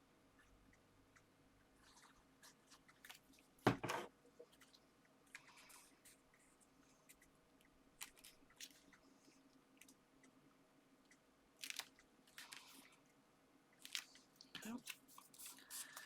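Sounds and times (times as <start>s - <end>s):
paper and card crinkling: 13.8s - 16.0s.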